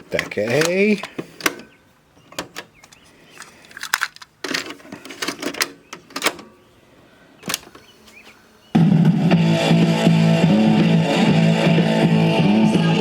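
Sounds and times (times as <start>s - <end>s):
cassette deck mechanical clacks: 0.0s - 1.7s.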